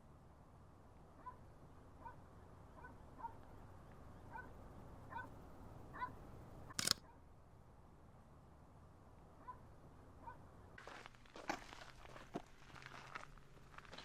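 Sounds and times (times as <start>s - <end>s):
outdoor background noise: 0.0s - 14.0s
sharp click: 6.7s - 7.0s.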